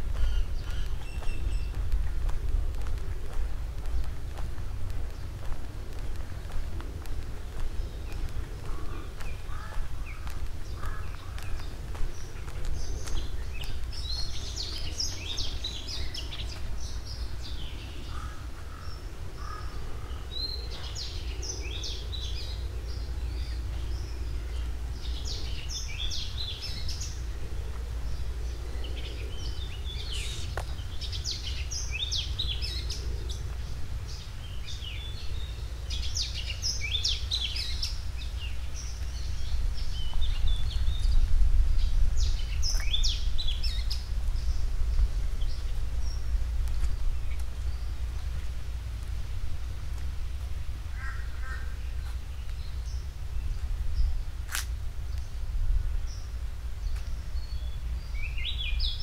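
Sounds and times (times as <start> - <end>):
birds chirping and singing: 0.0 - 2.9, 7.5 - 48.5, 56.0 - 59.0
low outdoor rumble: 0.0 - 59.0.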